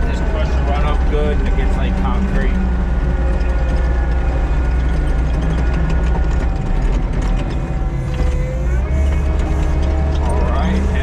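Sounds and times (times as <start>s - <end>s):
diesel engine running under load: 0.0s - 11.0s
mechanical clicking and rattling: 3.0s - 10.5s.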